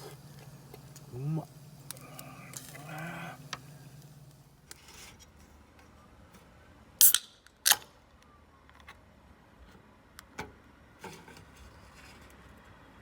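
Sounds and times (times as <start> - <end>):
faint low hum: 0.0 - 4.7.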